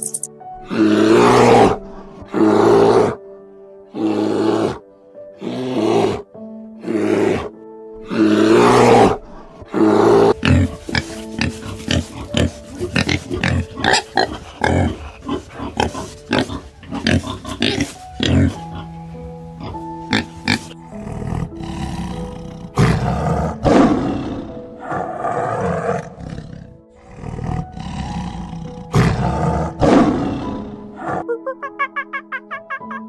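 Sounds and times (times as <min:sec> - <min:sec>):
background music: 0:00.0 - 0:33.0
breathy animal growls: 0:05.4 - 0:31.2
pig grunts: 0:08.1 - 0:19.0, 0:19.6 - 0:31.2.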